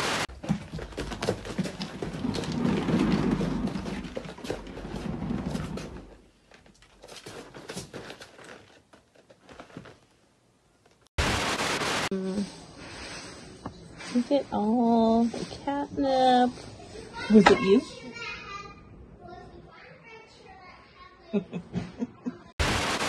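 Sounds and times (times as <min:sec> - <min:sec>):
exercise wheel rumbling: 0:00.0 - 0:08.8.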